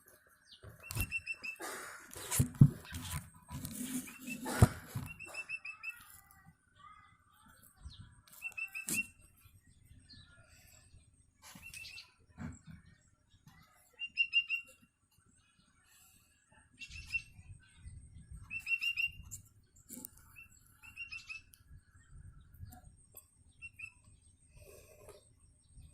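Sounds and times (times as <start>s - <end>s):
young bird begging chirps: 0.8s - 1.7s, 5.1s - 6.1s, 8.4s - 9.2s, 14.0s - 14.8s, 16.8s - 17.4s, 18.4s - 19.3s, 20.4s - 21.5s, 23.6s - 24.1s.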